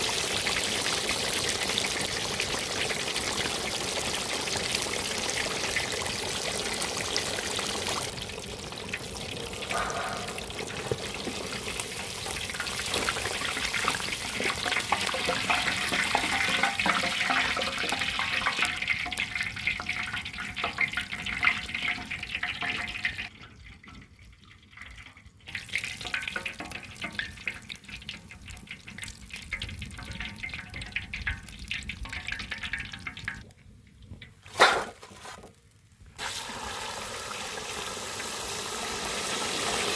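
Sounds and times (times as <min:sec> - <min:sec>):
water pouring and splashing: 0:00.0 - 0:39.9
sharp knock: 0:09.7 - 0:10.4.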